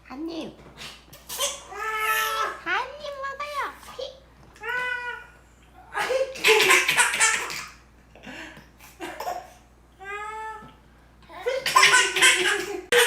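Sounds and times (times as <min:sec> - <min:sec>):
baby laughing: 0:05.9 - 0:07.8, 0:11.3 - 0:13.0.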